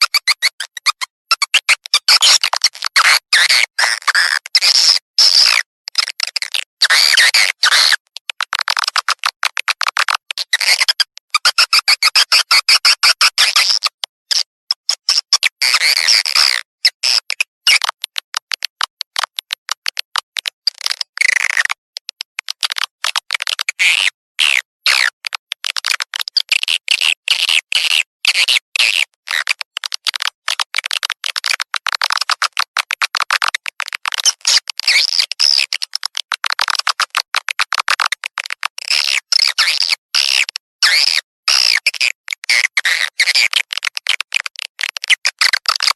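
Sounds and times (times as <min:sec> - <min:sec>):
recorded bird chattering chirps: 0:00.0 - 0:02.4
rapid bird clicking and chirps: 0:00.0 - 0:45.9.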